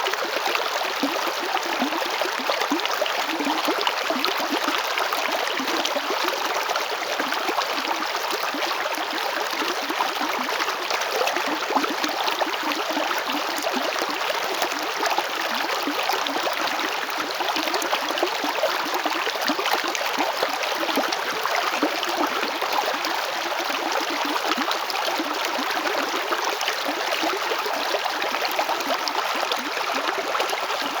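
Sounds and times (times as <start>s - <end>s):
river water flowing: 18.1s - 31.0s.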